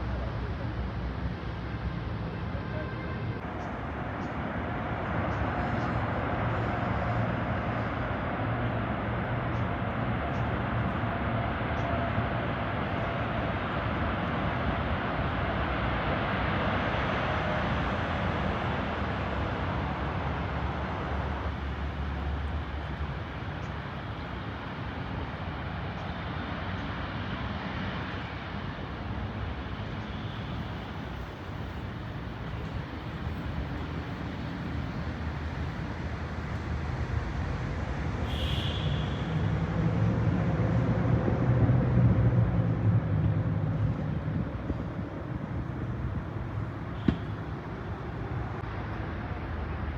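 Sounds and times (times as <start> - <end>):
jet airliner engines rushing: 3.4 - 49.9.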